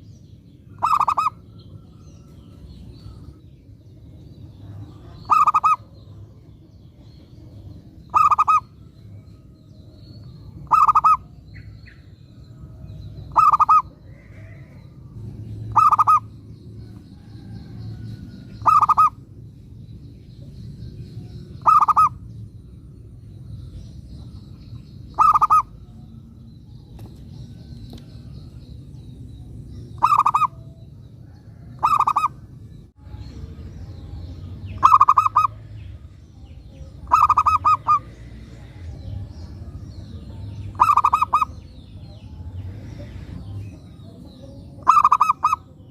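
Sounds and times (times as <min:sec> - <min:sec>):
faint low rumble: 0:00.0 - 0:45.9
dove cooing: 0:00.8 - 0:01.5, 0:05.0 - 0:05.9, 0:08.1 - 0:08.7, 0:10.6 - 0:11.2, 0:13.3 - 0:14.7, 0:15.7 - 0:16.3, 0:18.6 - 0:19.2, 0:21.6 - 0:22.2, 0:25.2 - 0:25.8, 0:31.5 - 0:32.4, 0:34.8 - 0:35.6, 0:37.0 - 0:38.1, 0:40.8 - 0:41.6, 0:44.8 - 0:45.6.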